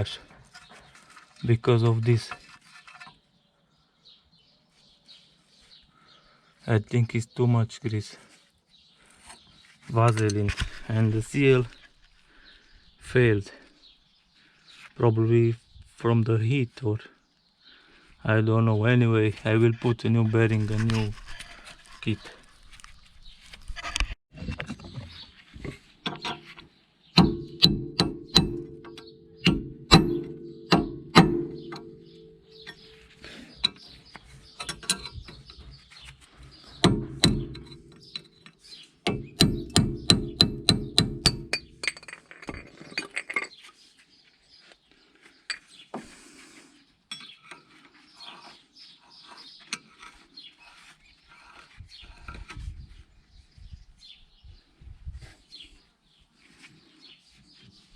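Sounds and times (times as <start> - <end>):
handling noises: 19.5 - 46.2.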